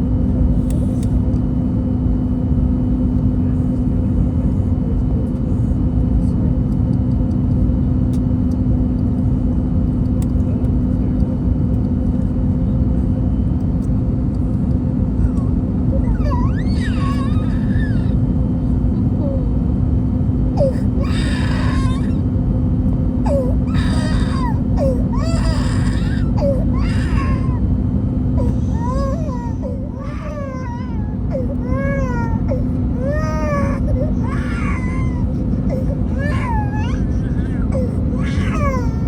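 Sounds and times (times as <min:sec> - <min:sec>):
airplane cabin rumble: 0:00.0 - 0:39.0
child crying: 0:15.2 - 0:18.2, 0:20.6 - 0:22.2, 0:23.2 - 0:27.7, 0:28.4 - 0:39.0.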